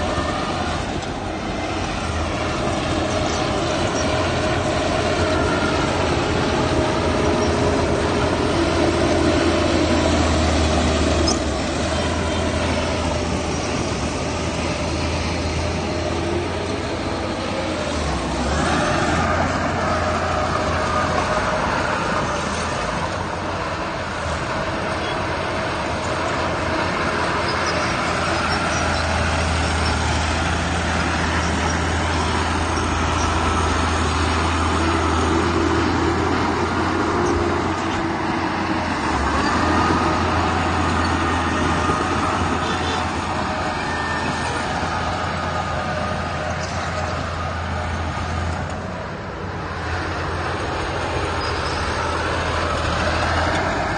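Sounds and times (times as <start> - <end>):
heavy diesel machinery rumbling: 0.0 - 53.9.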